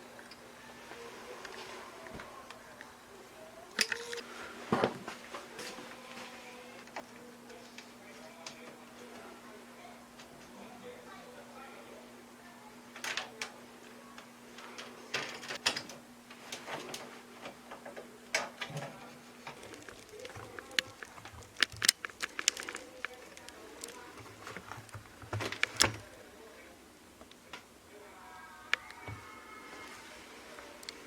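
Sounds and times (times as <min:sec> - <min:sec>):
faint steady hum: 0:00.0 - 0:31.0
hard parts clicking and knocking: 0:19.5 - 0:26.1.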